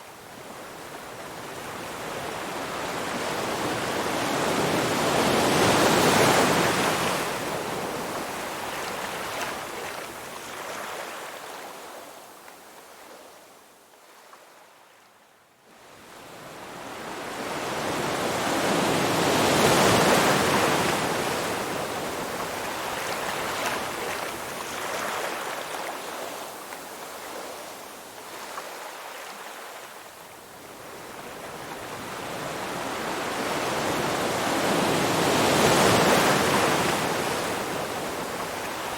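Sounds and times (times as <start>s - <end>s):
ocean surf waves: 1.4s - 9.7s, 16.9s - 29.9s, 30.8s - 38.9s.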